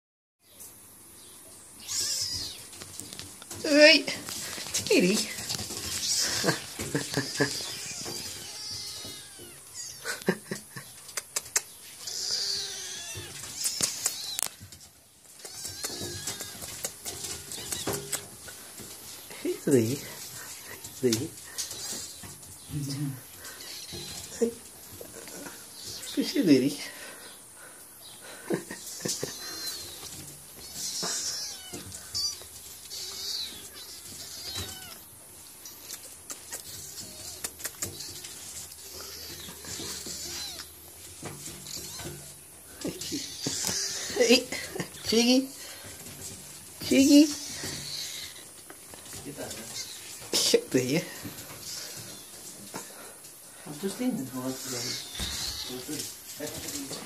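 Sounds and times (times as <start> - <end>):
kittens mewing: 1.8 - 2.8, 5.2 - 14.6, 15.3 - 18.6, 20.0 - 26.4, 28.2 - 50.5, 54.3 - 56.2.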